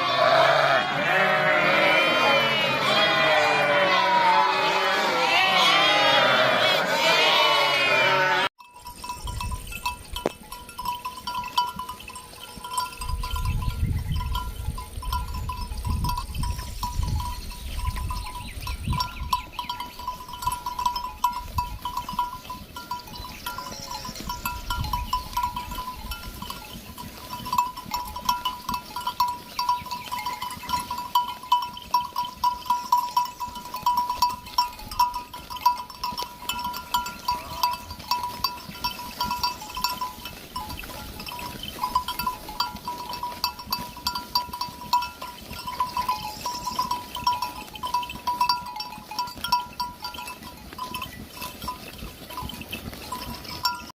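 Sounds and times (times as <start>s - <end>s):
livestock bells clinking: 0.0s - 53.9s.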